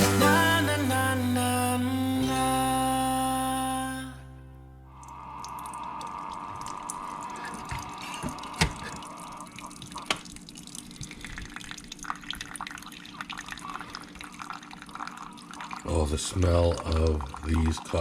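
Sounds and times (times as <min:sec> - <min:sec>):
water running: 0:05.0 - 0:18.0.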